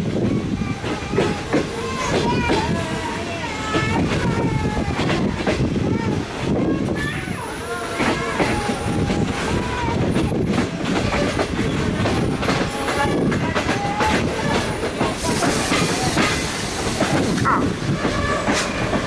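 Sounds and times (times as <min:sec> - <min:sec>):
train wheels clacking over rail joints: 0:00.1 - 0:07.1, 0:07.9 - 0:19.0
rushing hiss: 0:08.2 - 0:19.0.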